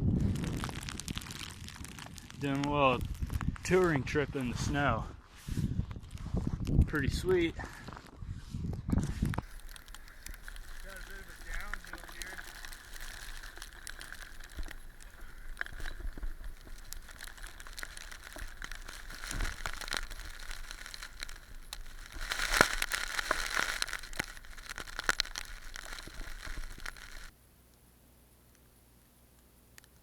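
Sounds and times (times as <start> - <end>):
crackling of camera case: 0.1 - 3.7, 9.4 - 27.4.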